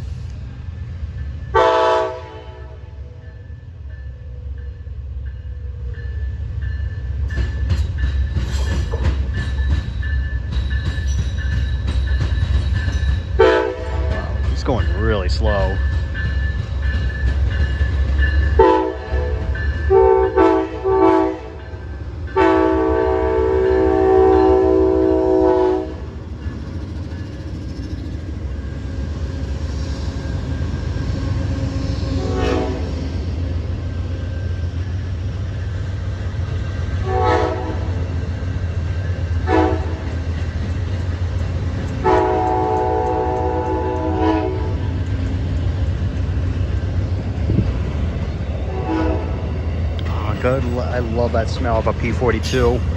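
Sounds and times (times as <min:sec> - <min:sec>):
diesel locomotive engine rumble: 0:00.0 - 0:52.9
locomotive air horn blasts: 0:01.6 - 0:03.0, 0:13.4 - 0:14.3, 0:18.6 - 0:21.6, 0:22.4 - 0:26.0, 0:32.2 - 0:32.9, 0:37.0 - 0:38.0, 0:39.4 - 0:40.1, 0:42.0 - 0:44.8, 0:48.7 - 0:49.4.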